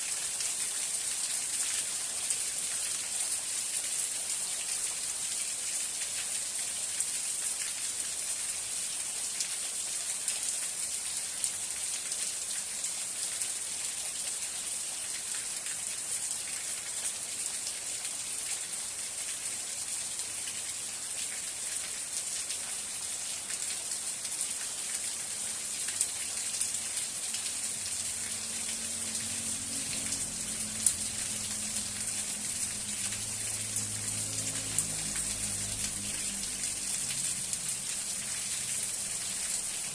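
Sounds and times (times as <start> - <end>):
rain falling: 0.0 - 39.9
water drips: 25.9 - 39.9.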